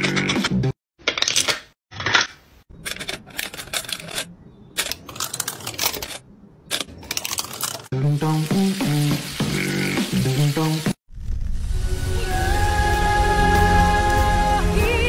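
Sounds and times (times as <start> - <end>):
utensils clicking and clattering: 0.0 - 7.9
music: 7.9 - 15.0
frying sizzle: 8.1 - 11.0.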